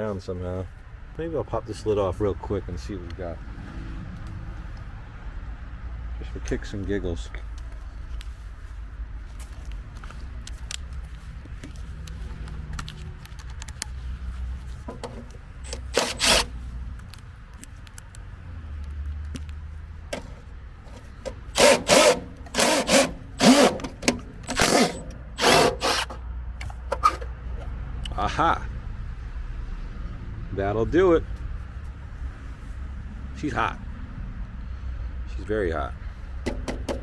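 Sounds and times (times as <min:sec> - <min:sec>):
cordless drill bursts: 0:15.6 - 0:16.5, 0:21.4 - 0:26.2.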